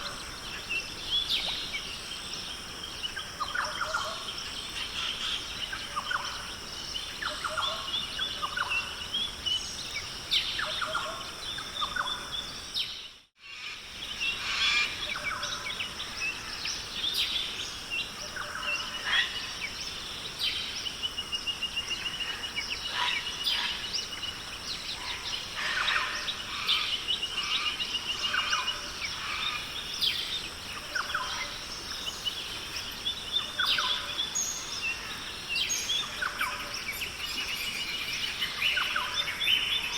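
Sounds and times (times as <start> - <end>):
birds chirping: 14.0 - 39.9.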